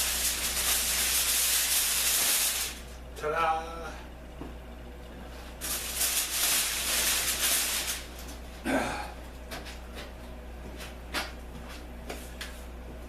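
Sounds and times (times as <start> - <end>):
cardboard and foil rustling: 5.6 - 8.4.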